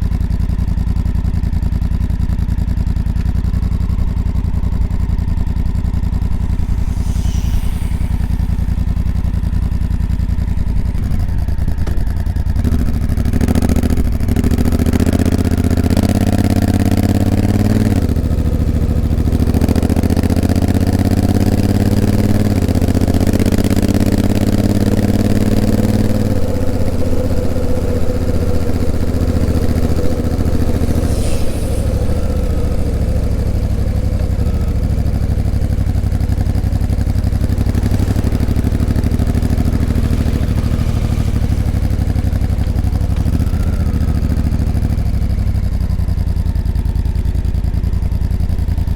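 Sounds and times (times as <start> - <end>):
motorcycle engine under load: 0.0 - 48.9
light wind hiss: 5.6 - 11.1, 16.1 - 45.3.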